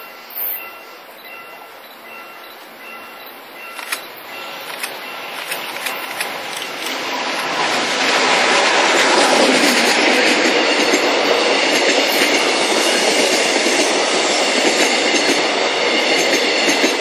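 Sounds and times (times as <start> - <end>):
train wheel clicks over rails: 3.7 - 17.0
wheel-on-rail rumble and hiss: 3.8 - 17.0.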